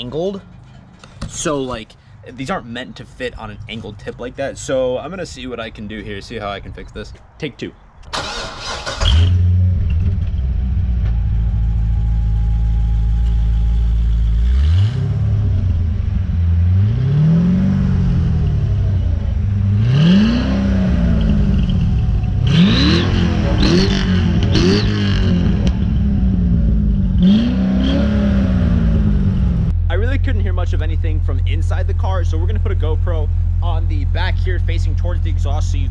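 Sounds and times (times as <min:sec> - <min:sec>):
car engine idling and revving: 0:08.2 - 0:35.9.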